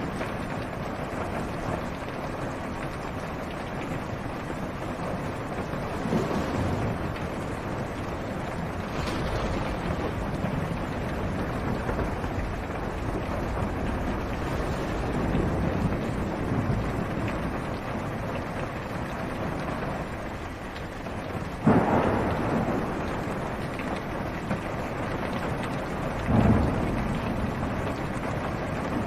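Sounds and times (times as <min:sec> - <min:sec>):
low thunder rumbling: 0:00.0 - 0:29.0
rain on a car roof: 0:00.0 - 0:29.0.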